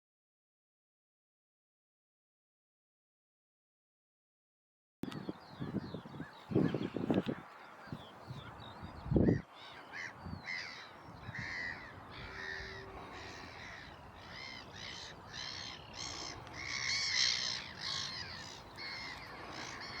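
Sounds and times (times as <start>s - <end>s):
birds making harsh calls: 5.1s - 20.0s.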